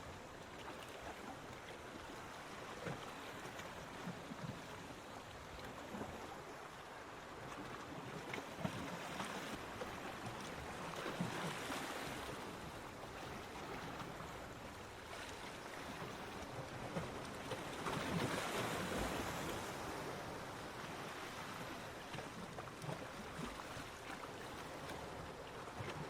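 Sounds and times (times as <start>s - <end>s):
ocean surf on beach: 8.8s - 26.0s.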